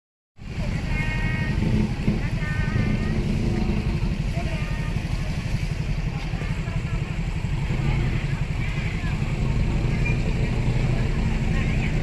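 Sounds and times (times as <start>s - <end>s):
faint voices: 0.4s - 12.0s
heavy vehicle engine running: 0.4s - 12.0s.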